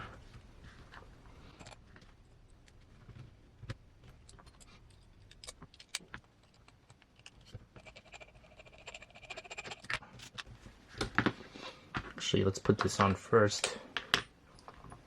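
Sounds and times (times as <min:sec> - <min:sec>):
metal parts clicking and tapping: 0:04.0 - 0:10.5.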